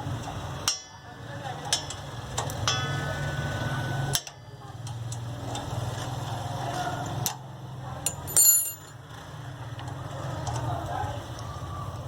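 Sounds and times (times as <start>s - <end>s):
short metallic clink: 8.1s - 9.0s.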